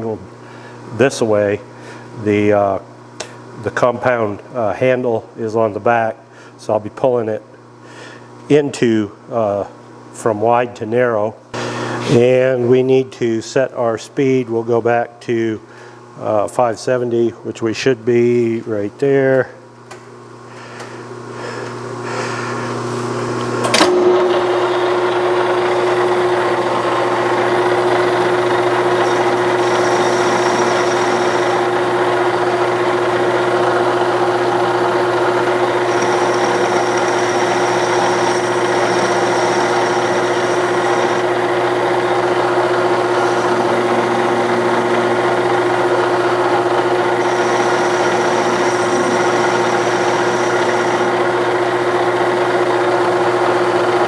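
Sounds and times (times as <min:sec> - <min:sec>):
metal lathe running: 0:23.9 - 0:54.0
thin high whine: 0:27.3 - 0:33.0, 0:34.2 - 0:51.9.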